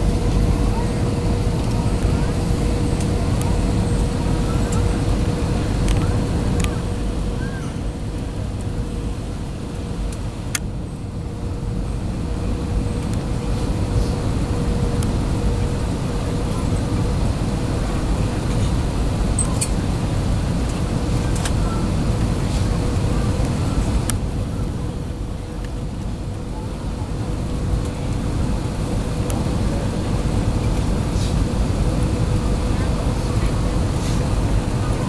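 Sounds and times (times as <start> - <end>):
airliner cabin rumble: 0.0 - 35.0
faint constant hum: 0.0 - 35.0.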